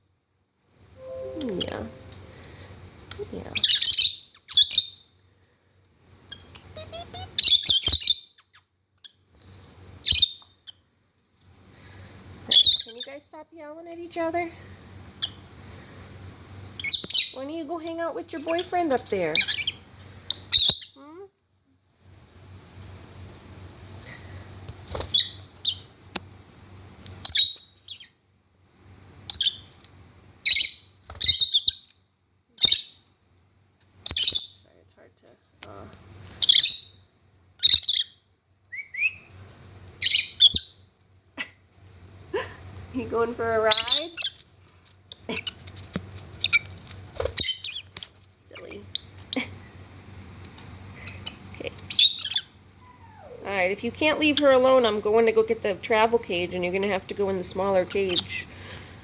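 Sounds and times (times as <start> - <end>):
lovebirds screeching and chirping: 3.6 - 5.0, 6.3 - 8.6, 10.0 - 10.5, 12.5 - 13.2, 16.8 - 21.0, 30.5 - 31.9, 32.6 - 33.0, 34.0 - 34.6, 36.4 - 37.0, 37.6 - 38.2, 40.0 - 40.8, 43.0 - 44.5, 45.1 - 49.4, 51.0 - 53.4, 54.0 - 54.9, 57.5 - 58.9.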